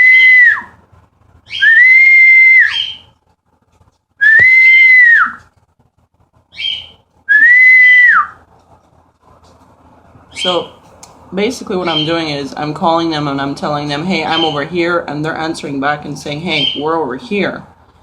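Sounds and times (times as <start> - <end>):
cockatiel calls: 1.5 - 3.1, 6.5 - 8.1, 11.8 - 12.2
person whistling: 4.2 - 5.4, 7.3 - 8.4.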